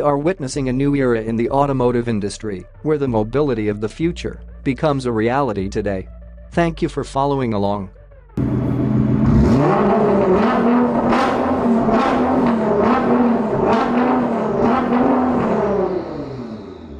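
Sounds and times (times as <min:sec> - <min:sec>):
car engine revving: 0:08.4 - 0:16.9.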